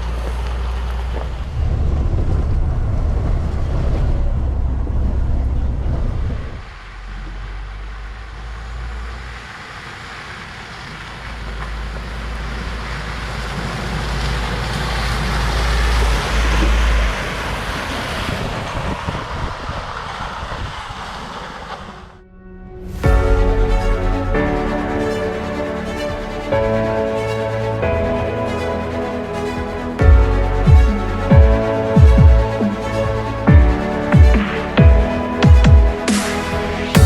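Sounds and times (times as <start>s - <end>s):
truck engine rumble: 0.0s - 37.0s
wind noise on microphone: 1.2s - 6.8s, 13.5s - 24.4s.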